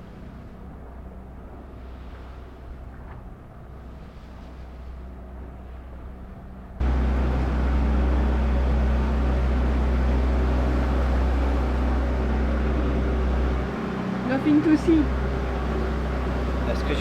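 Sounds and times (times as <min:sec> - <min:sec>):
low mechanical hum of machinery: 0:00.0 - 0:17.0.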